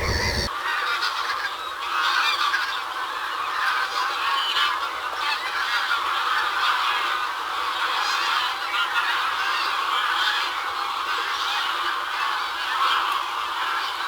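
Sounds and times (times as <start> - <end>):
geese honking: 0.0 - 0.5.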